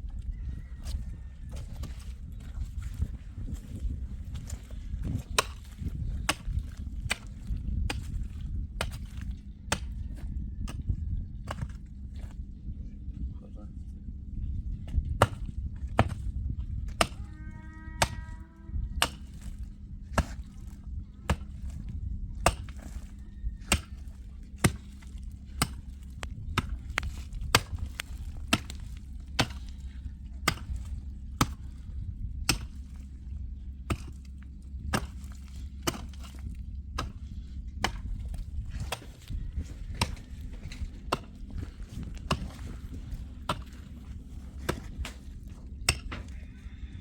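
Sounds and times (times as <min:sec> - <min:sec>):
low steady rumble: 0:00.0 - 0:47.0
sharp chopping strikes: 0:22.4 - 0:23.0, 0:23.6 - 0:24.0, 0:24.6 - 0:29.8, 0:30.5 - 0:31.6, 0:32.5 - 0:33.0, 0:33.9 - 0:34.2, 0:34.9 - 0:36.4, 0:37.8 - 0:39.2, 0:40.0 - 0:42.7.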